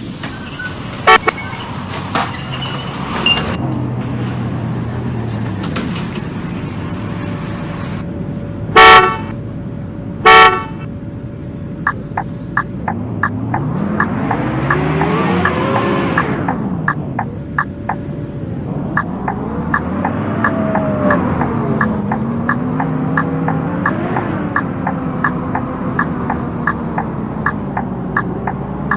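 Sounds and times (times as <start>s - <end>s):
bus horn toots: 0.0s - 8.0s, 8.7s - 11.1s
bus diesel engine running: 0.0s - 28.9s
regular ticking: 8.0s - 28.9s.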